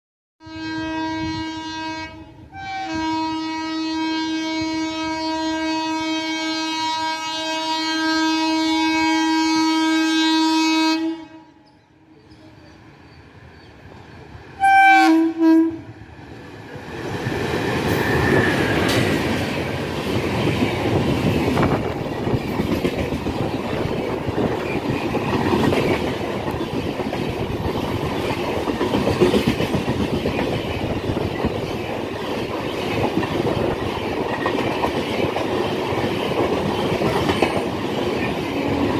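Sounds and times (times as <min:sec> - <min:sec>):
train horn blasts: 0:00.4 - 0:11.8, 0:14.6 - 0:16.0
train coaches rushing past: 0:11.5 - 0:38.9.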